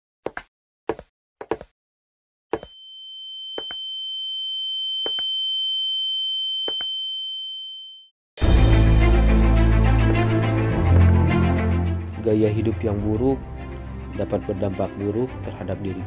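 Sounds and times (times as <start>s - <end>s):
footsteps on tiled floor: 0.3s - 1.7s
loud music: 8.4s - 14.2s.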